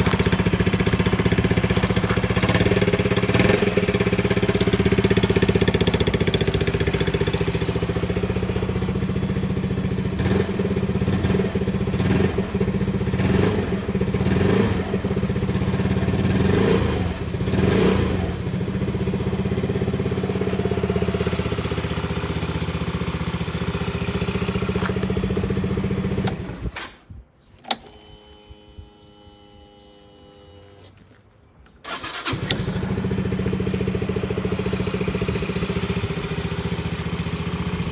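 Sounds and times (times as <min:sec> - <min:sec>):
scooter engine idling and revving: 0:00.0 - 0:26.8, 0:31.9 - 0:37.9
click: 0:27.6 - 0:28.1.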